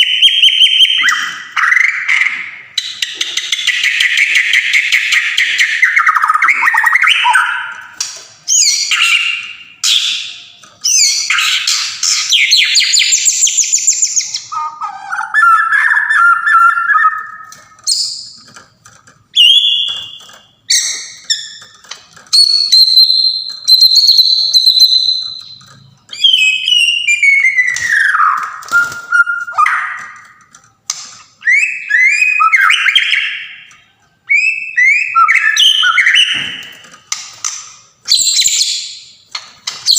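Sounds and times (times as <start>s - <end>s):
bird singing: 0.0s - 18.6s, 19.3s - 30.5s, 31.3s - 36.9s, 38.1s - 39.9s.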